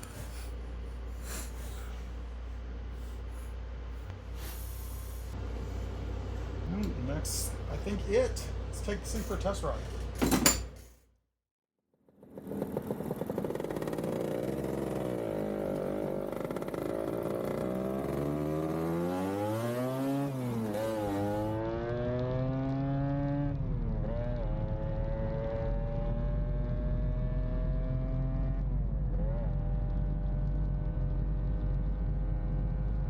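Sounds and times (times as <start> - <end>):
motorized bicycle motor running: 3.0 - 5.4.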